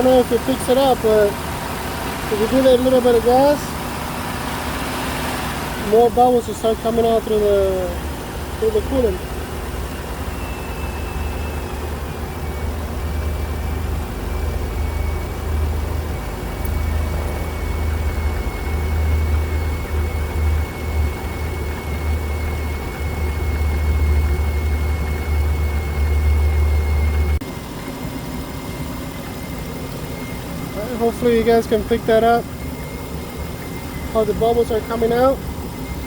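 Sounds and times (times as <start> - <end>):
car engine rumbling: 0.0 - 36.0
engine high whine: 0.0 - 36.0.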